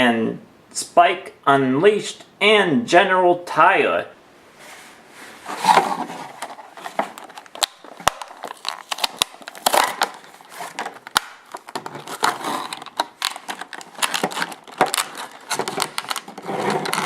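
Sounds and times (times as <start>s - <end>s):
plastic packaging crinkling: 5.4s - 17.0s.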